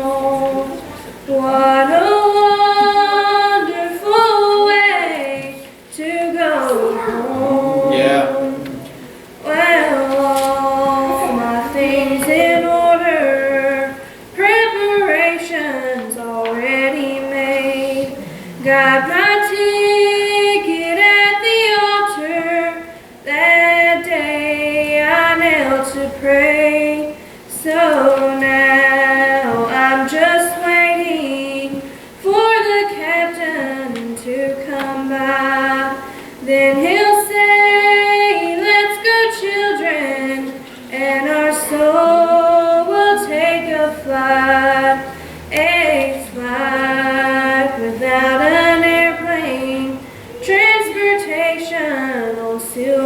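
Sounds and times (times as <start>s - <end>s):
woman singing a hymn unaccompanied: 0.0s - 53.0s.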